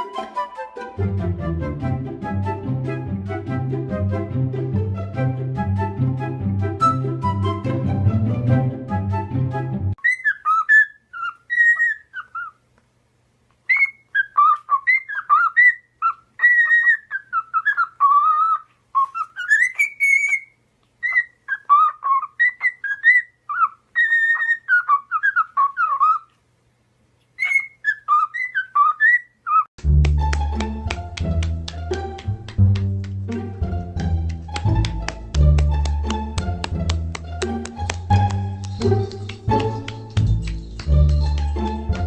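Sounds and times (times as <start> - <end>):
parrot whistling: 10.0 - 12.5, 27.4 - 29.7.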